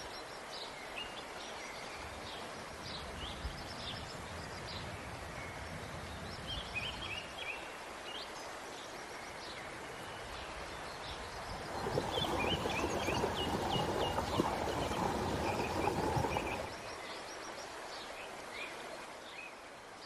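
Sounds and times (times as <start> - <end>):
small birds chirping: 11.4 - 16.8.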